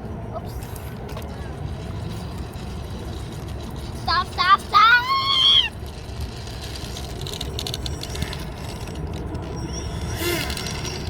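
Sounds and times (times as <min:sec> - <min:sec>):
high-pitched shout: 0:04.1 - 0:05.7.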